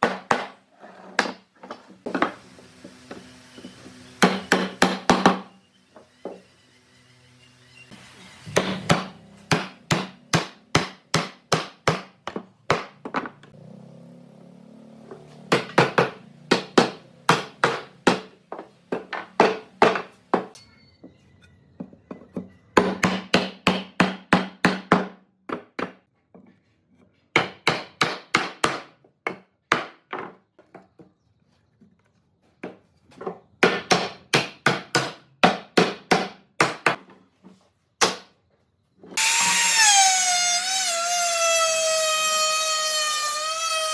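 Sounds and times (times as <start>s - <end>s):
hammering on wood: 0.0s - 0.6s, 4.2s - 5.5s, 8.6s - 13.4s, 15.5s - 20.6s, 22.8s - 26.0s, 27.3s - 30.2s, 33.6s - 37.0s, 38.0s - 38.3s.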